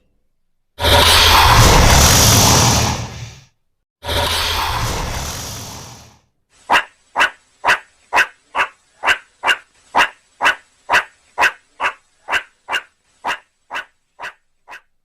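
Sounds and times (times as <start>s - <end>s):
dog barking: 6.7s - 14.9s.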